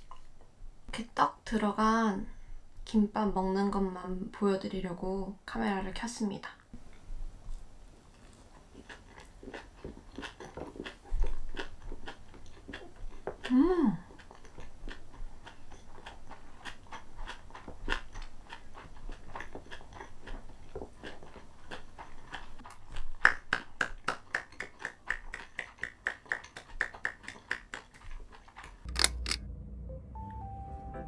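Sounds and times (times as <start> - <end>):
person chewing food: 6.8 - 29.3
sharp click: 28.9 - 29.4.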